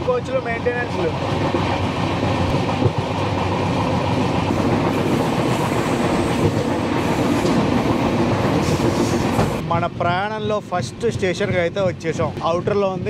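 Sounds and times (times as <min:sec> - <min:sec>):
train wheel and rail noise: 0:00.0 - 0:13.0.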